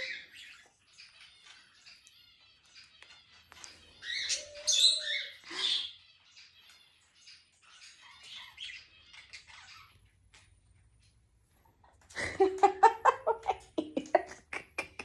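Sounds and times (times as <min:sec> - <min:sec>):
parakeet squawking: 0:00.0 - 0:10.5
parakeet chirps and chatter: 0:00.0 - 0:13.8.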